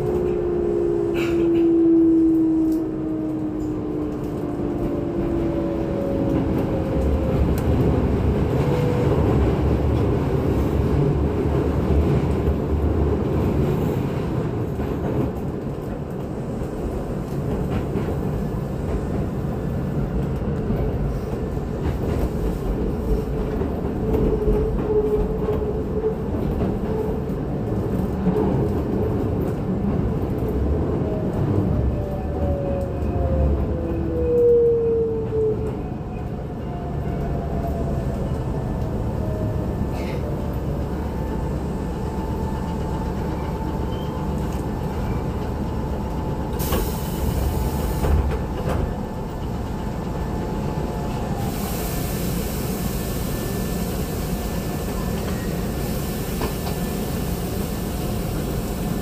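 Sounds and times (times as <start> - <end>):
train running rumble: 0.0 - 59.0
brief air hiss: 51.4 - 53.8.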